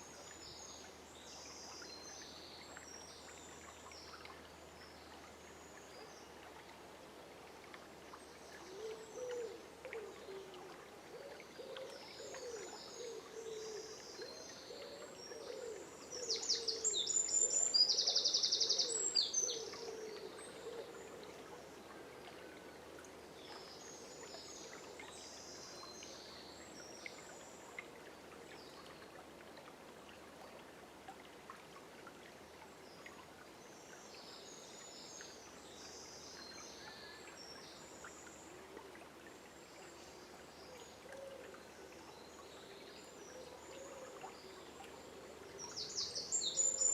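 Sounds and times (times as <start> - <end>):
songbirds singing: 40.0 - 46.9.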